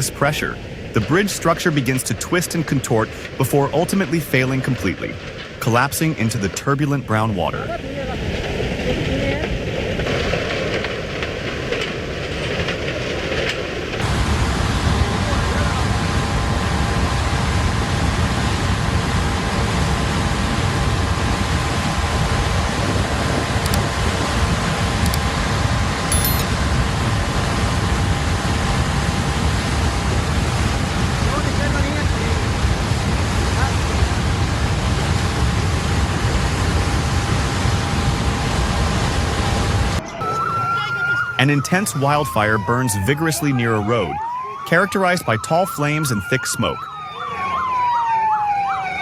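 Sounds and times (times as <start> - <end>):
floodwater roaring in a river: 0.0 - 49.0
faint steady tone: 26.1 - 26.5.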